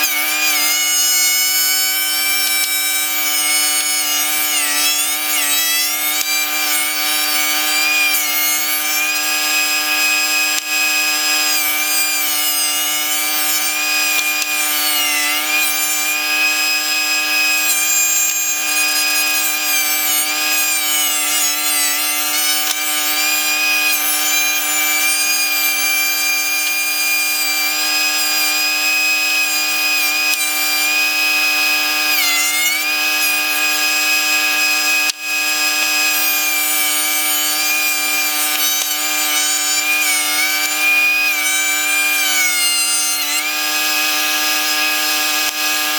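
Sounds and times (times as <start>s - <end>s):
thickness planer whine: 0.0s - 45.9s.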